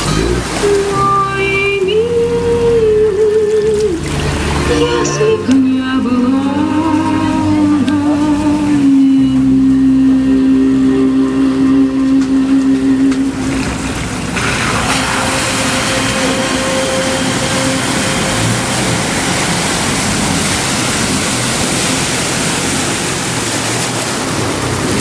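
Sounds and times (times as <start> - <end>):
off-road vehicle engine running: 0.0 - 25.0
loud steady rushing noise: 13.3 - 25.0.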